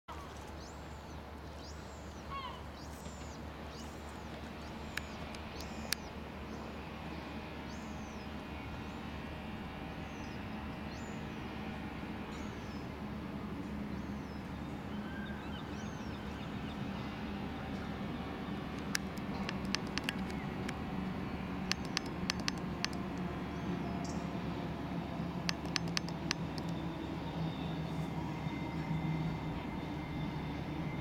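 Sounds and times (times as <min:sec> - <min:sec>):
small bird chirping: 0:04.6 - 0:06.1, 0:18.8 - 0:20.8, 0:21.7 - 0:24.2, 0:25.5 - 0:26.8
distant low rumble: 0:10.3 - 0:27.3
sharp click: 0:18.8 - 0:20.8, 0:21.7 - 0:23.2, 0:25.5 - 0:26.8.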